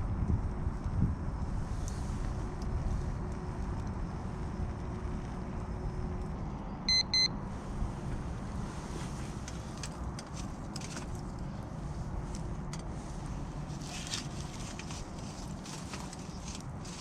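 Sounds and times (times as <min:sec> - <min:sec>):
short electronic beeps: 0:06.9 - 0:07.4.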